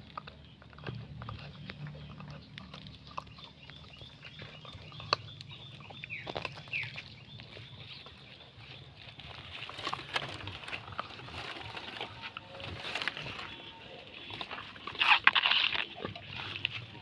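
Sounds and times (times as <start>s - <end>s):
dog chewing clicks: 0.0s - 7.0s.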